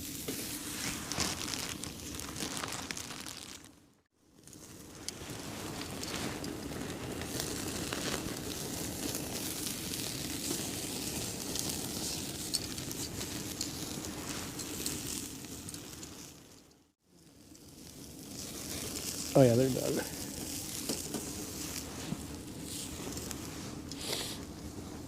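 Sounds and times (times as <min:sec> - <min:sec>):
wood fire crackling: 0:00.0 - 0:25.0.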